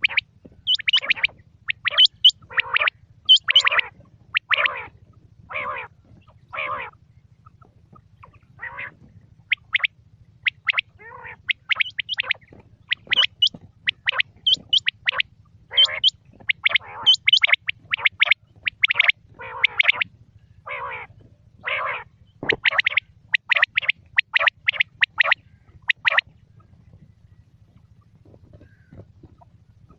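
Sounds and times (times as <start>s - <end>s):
quail calling: 0.0s - 27.0s, 27.7s - 29.9s
faint steady hum: 0.0s - 29.9s.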